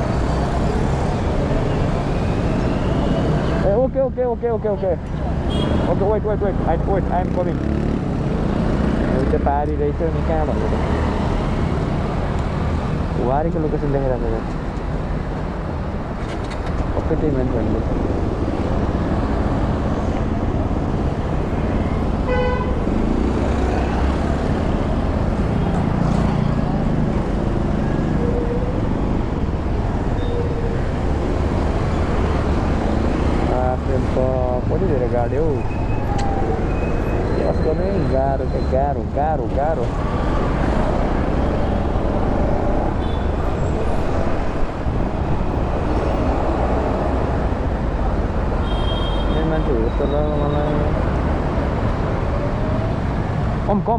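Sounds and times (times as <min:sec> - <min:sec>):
hum of traffic: 0:00.0 - 0:53.9
vehicle horn tooting: 0:05.5 - 0:05.9, 0:22.3 - 0:22.9, 0:48.6 - 0:49.5
motorbike running: 0:06.7 - 0:12.0.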